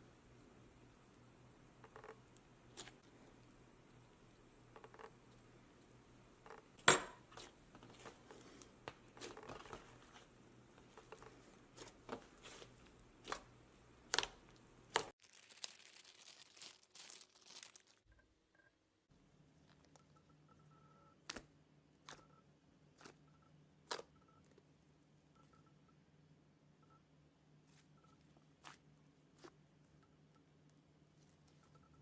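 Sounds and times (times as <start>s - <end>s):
plastic crinkling: 14.1s - 18.1s.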